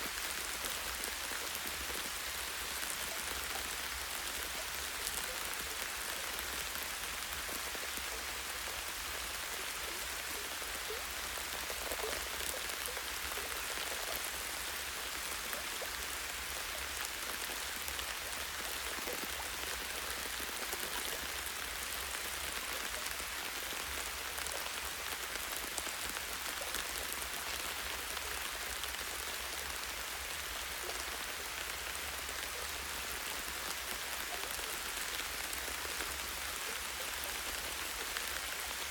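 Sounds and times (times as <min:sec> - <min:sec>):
light rain on leaves: 0:00.0 - 0:38.9.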